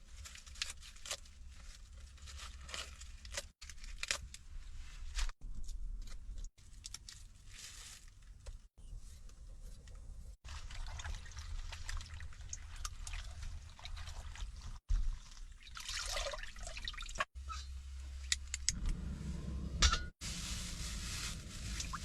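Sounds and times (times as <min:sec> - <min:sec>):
water splashing and dripping: 0:10.4 - 0:17.3.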